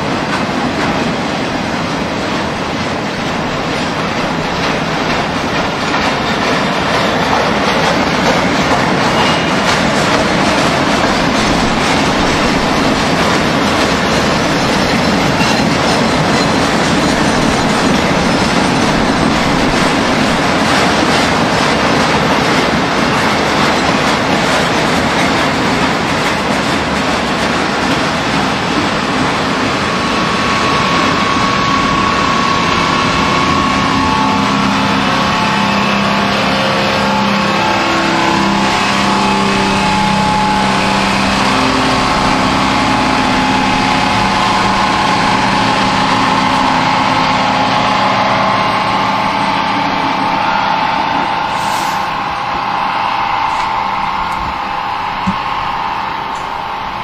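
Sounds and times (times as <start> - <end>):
steel wheels rushing on rails: 0.0 - 57.0
steady droning tone: 31.6 - 57.0.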